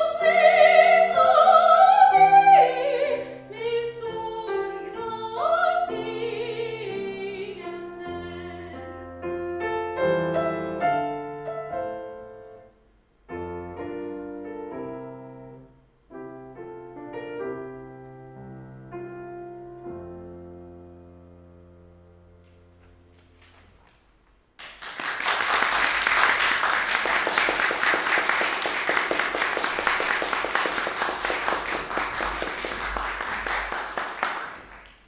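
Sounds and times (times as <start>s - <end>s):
person singing classical song: 0.0s - 9.5s, 25.8s - 35.0s
piano playing: 0.0s - 23.4s.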